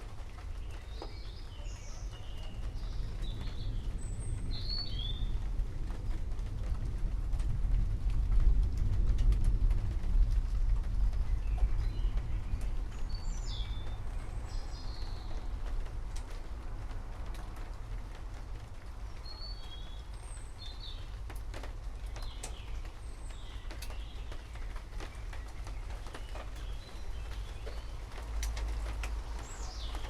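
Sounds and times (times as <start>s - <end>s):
birds chirping: 0.0s - 5.5s, 11.0s - 16.4s, 19.0s - 30.0s
rain hiss: 0.0s - 30.0s
low rumble: 2.1s - 24.6s
dripping ticks: 2.4s - 30.0s.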